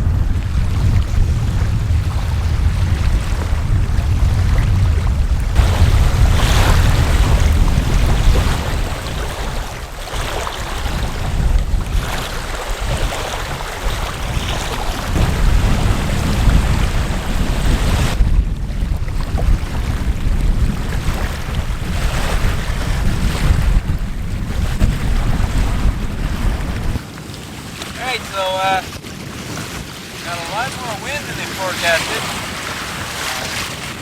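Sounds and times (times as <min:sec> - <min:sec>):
gusty wind buffeting microphone: 0:00.0 - 0:34.0.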